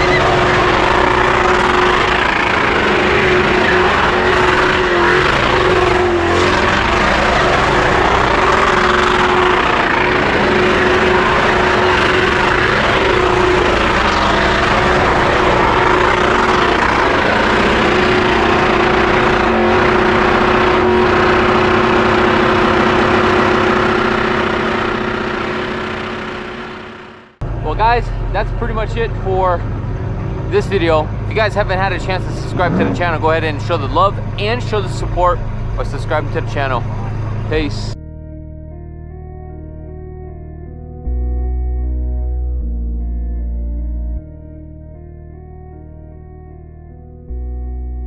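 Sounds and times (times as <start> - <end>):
car engines revving: 0.0 - 38.0
steady engine drone: 0.0 - 48.0.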